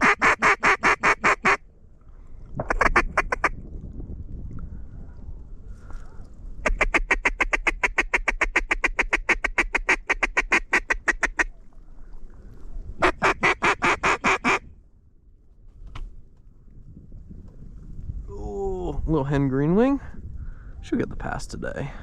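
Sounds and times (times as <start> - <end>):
duck call quacking: 0.0 - 1.6, 2.7 - 3.5, 6.6 - 11.5, 13.0 - 14.6.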